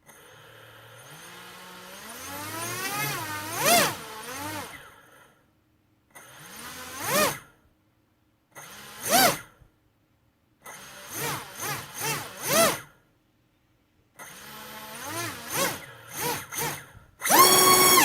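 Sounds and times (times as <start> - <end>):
drone motor whining: 14.5 - 18.0.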